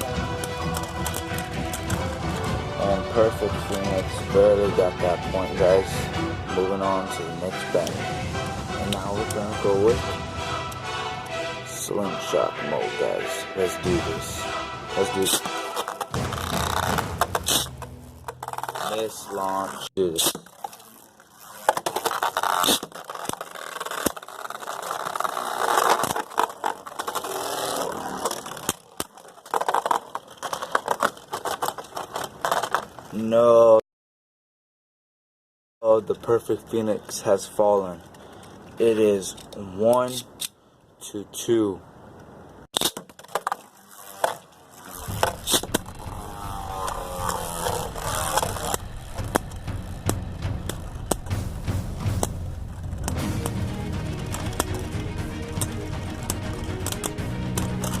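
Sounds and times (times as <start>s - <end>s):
tops clicking together: 0.0s - 2.6s, 45.0s - 58.0s
spinning tops whirring and scraping: 0.0s - 7.0s, 13.9s - 33.1s, 43.2s - 58.0s.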